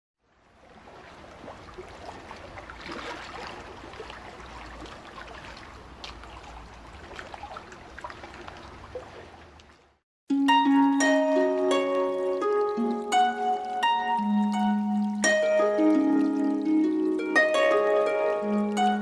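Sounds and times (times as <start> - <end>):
stream trickling: 0.2 - 19.0
plucked harp-like music: 10.3 - 19.0.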